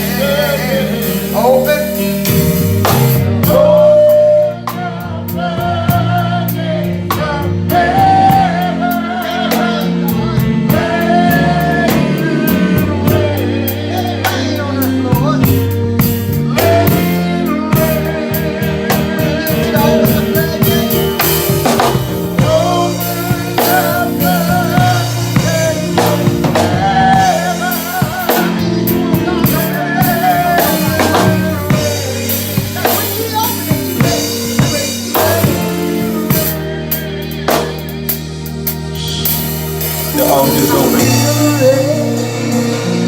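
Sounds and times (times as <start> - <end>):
drum kit beat with rimshots: 0.0 - 43.0
sustained keyboard chords: 0.0 - 43.0.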